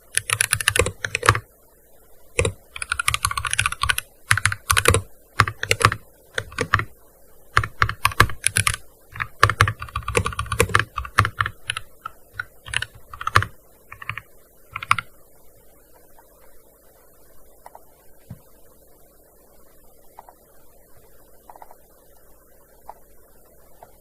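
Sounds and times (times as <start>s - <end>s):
keyboard typing: 0.0s - 1.4s, 2.4s - 6.9s, 7.5s - 15.1s, 21.5s - 21.8s.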